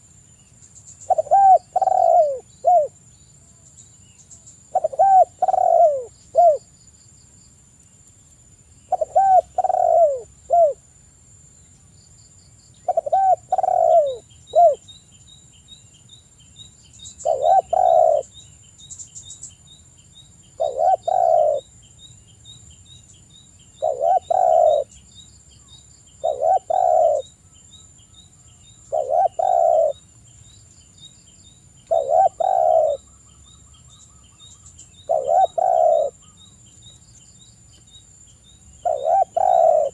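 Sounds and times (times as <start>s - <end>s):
dove cooing: 1.0s - 3.0s, 4.7s - 6.7s, 8.9s - 10.8s, 12.9s - 14.8s, 17.2s - 18.3s, 20.6s - 21.7s, 23.8s - 24.9s, 26.2s - 27.3s, 28.9s - 30.0s, 31.9s - 33.0s, 35.0s - 36.4s, 38.8s - 39.9s.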